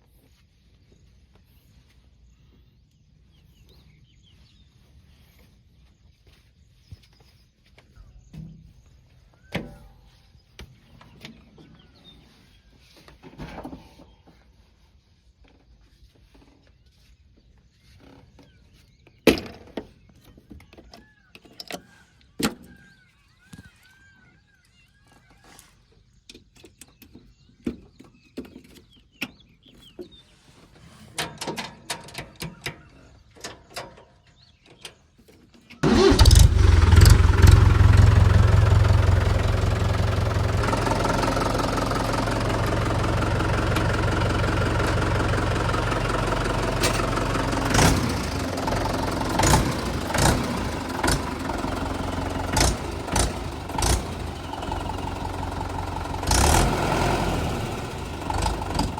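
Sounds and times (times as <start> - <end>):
diesel engine starting and idling: 35.8 - 58.9.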